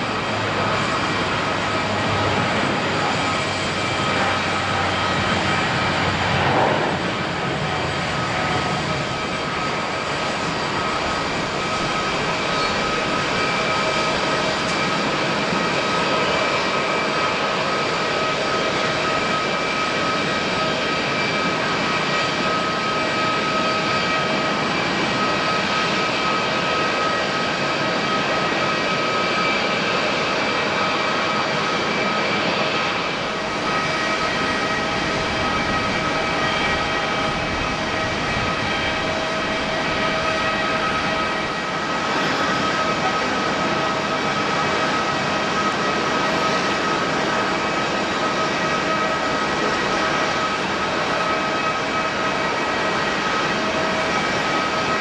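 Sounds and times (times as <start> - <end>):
jet engines roaring and whining: 0.0 - 55.0.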